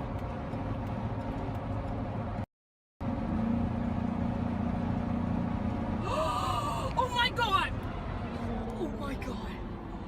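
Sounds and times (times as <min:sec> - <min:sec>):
car engine: 0:00.0 - 0:10.0
road noise: 0:00.0 - 0:10.0.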